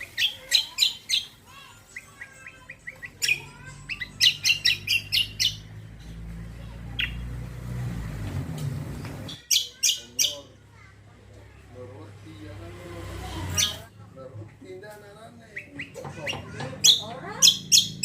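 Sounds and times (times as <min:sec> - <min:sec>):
songbird singing: 0:00.0 - 0:07.6, 0:08.6 - 0:10.6, 0:15.4 - 0:18.0.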